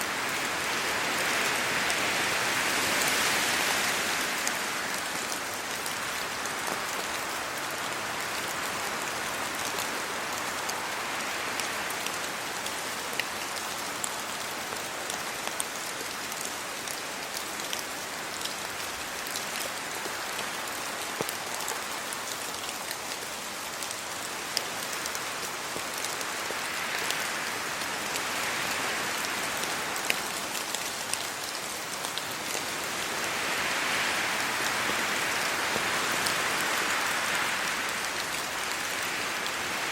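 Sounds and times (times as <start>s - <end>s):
rain falling on trees and road: 0.0s - 39.9s
wind stirring leaves: 24.0s - 39.9s.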